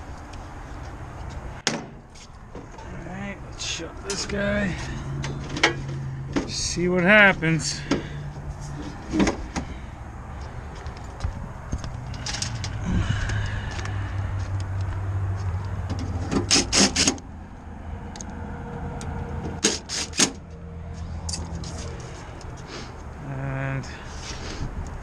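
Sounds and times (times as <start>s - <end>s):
sharp knocks: 1.6s - 2.2s.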